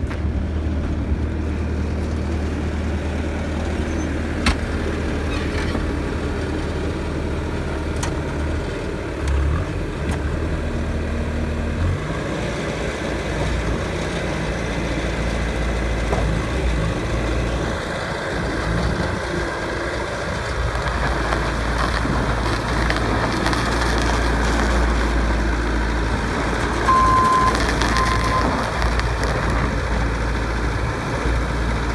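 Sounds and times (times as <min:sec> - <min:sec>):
diesel engine drone: 0:00.0 - 0:31.9
short high beeps: 0:26.9 - 0:28.6.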